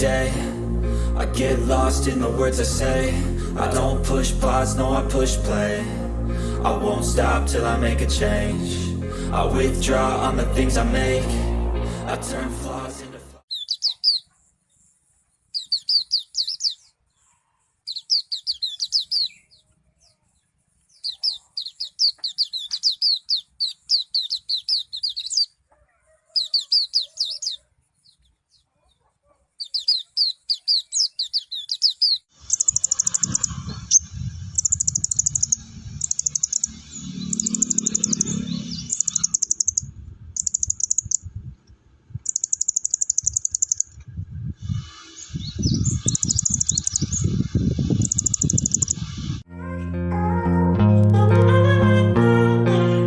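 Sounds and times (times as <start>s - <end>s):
low rumble: 0.0s - 13.4s, 33.1s - 40.4s
fast high chattering birdsong: 13.5s - 14.3s, 15.5s - 16.9s, 17.9s - 19.6s, 20.9s - 25.6s, 26.4s - 28.6s, 29.6s - 41.3s, 42.2s - 44.0s, 44.7s - 49.4s
lark singing rising notes: 29.7s - 41.3s, 42.2s - 49.5s.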